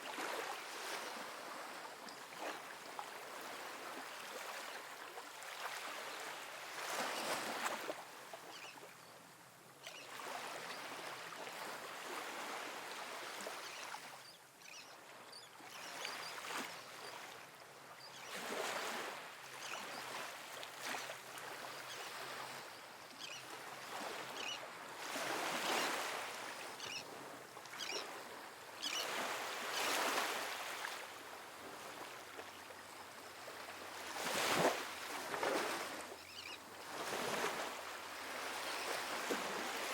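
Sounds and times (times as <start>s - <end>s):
ocean waves breaking on beach: 18.3s - 39.9s.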